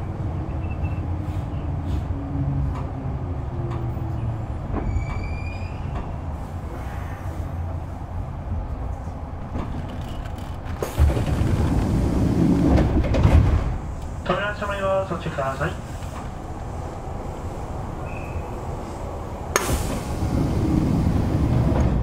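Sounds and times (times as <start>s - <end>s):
train wheels rumbling on rails: 0.0s - 22.0s
faint high squeal: 4.8s - 6.0s, 18.0s - 18.6s.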